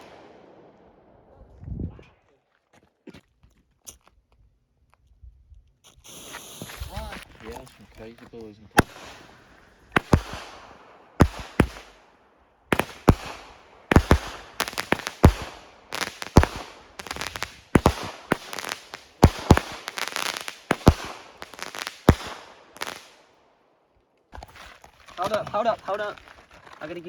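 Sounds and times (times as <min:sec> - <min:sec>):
fireworks crackling: 0:00.0 - 0:01.5, 0:05.9 - 0:23.5, 0:24.4 - 0:27.0
fireworks bangs: 0:00.0 - 0:01.6, 0:06.0 - 0:23.4.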